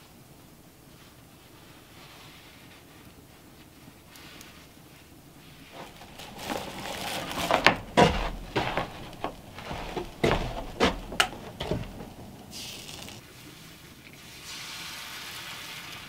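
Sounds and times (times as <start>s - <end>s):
irregular knocks and clunks: 5.8s - 12.5s.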